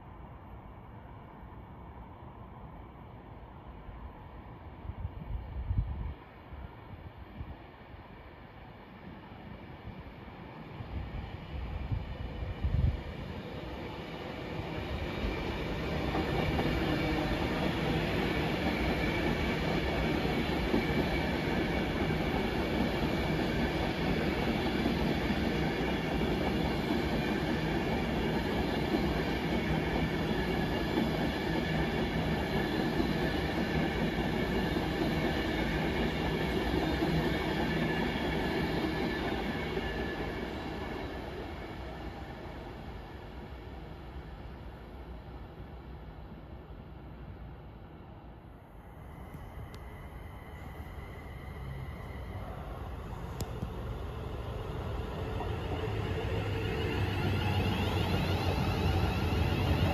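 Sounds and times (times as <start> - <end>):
electric train passing: 0.0 - 59.9
wheels rumbling on rail: 49.1 - 59.9.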